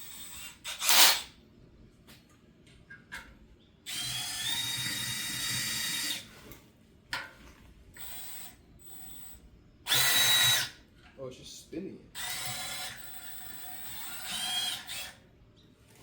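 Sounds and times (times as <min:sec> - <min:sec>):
power drill drilling metal: 0:00.0 - 0:01.3, 0:09.9 - 0:10.8, 0:12.2 - 0:15.2.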